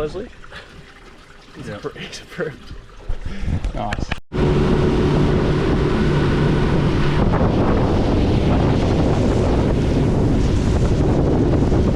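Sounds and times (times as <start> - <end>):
wind buffeting microphone: 2.6 - 11.9.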